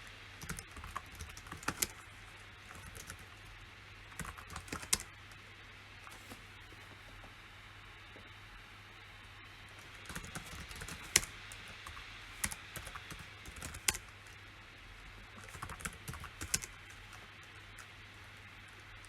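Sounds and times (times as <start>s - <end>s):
faint low hum: 0.0s - 19.0s
computer keyboard typing: 0.4s - 2.1s, 2.7s - 3.4s, 4.1s - 5.4s, 9.8s - 14.2s, 15.4s - 17.9s.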